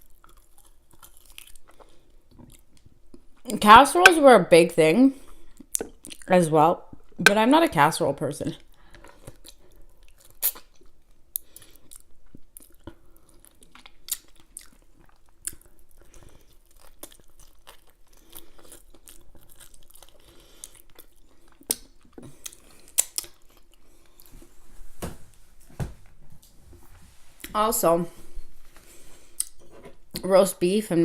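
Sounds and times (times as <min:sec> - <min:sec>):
person chewing food: 0:00.0 - 0:03.5, 0:05.2 - 0:06.3, 0:08.6 - 0:24.5, 0:28.2 - 0:30.2
mouth clicks and smacks: 0:05.6 - 0:06.3, 0:10.2 - 0:15.7.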